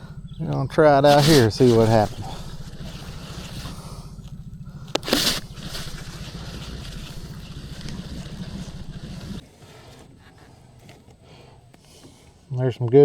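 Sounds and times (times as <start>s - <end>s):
outboard motor running: 0.0s - 12.3s
faint wind: 0.0s - 13.0s
water: 1.1s - 9.4s.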